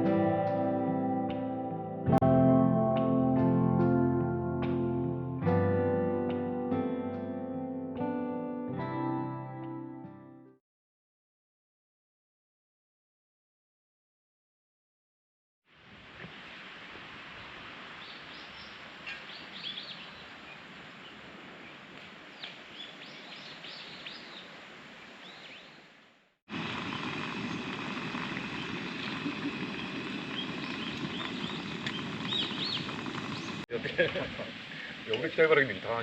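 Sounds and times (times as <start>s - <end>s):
outdoor background hiss: 15.7s - 36.0s
small birds chirping: 18.0s - 21.8s, 22.4s - 25.8s, 26.8s - 33.6s.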